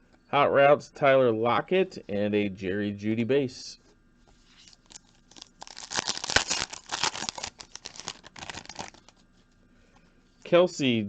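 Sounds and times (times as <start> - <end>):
foil wrapper tearing and crinkling: 4.5 - 9.2.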